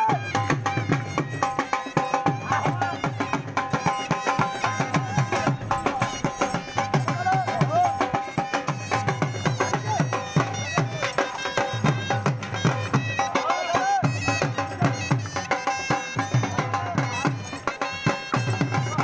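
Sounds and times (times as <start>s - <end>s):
dhol drumming fast beat: 0.0s - 19.0s
wavering melody: 0.1s - 19.0s.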